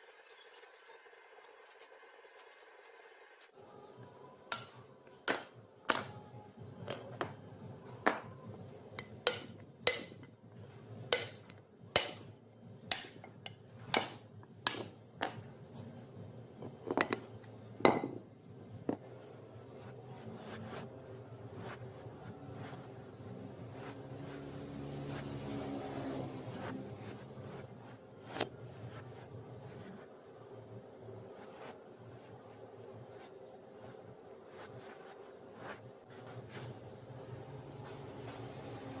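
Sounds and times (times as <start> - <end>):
low steady hum: 3.5 - 39.0
metal tapping with high ring: 4.5 - 6.3, 12.9 - 15.5.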